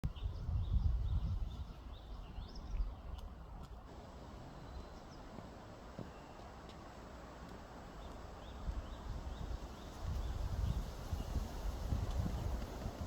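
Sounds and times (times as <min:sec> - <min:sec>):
small birds chirping: 0:03.9 - 0:13.0.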